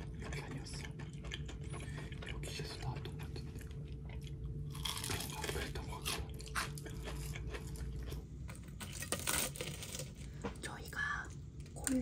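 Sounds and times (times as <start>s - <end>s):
crunching crispy fried food: 0.2s - 10.4s.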